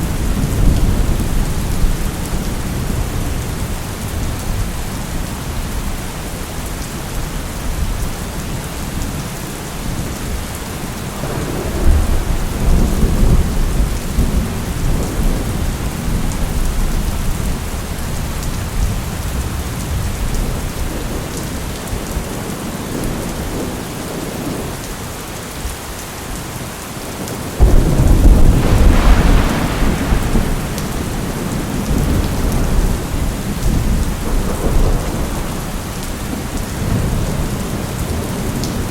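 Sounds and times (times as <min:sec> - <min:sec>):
thunder rumbling and cracking: 0:00.0 - 0:05.8, 0:11.0 - 0:23.8, 0:27.5 - 0:38.9
heavy rain: 0:00.0 - 0:38.9.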